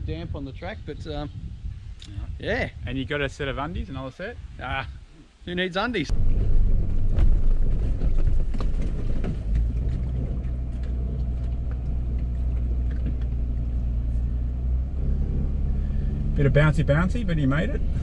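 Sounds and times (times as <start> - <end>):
engine running low rumble: 6.1 - 18.0.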